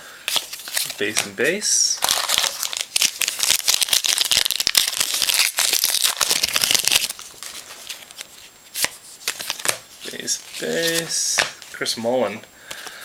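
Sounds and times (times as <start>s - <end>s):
wrapper tearing and crinkling: 2.0s - 11.5s.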